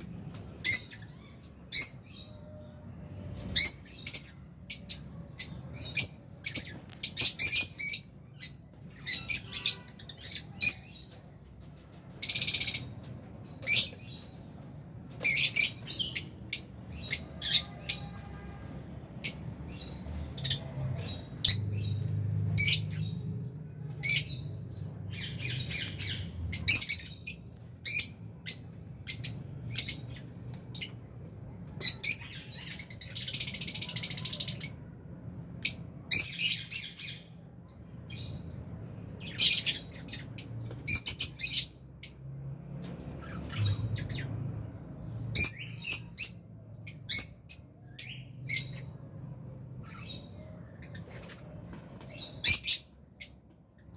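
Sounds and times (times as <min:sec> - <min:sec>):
lovebirds chirping and squawking: 0:00.0 - 0:53.9.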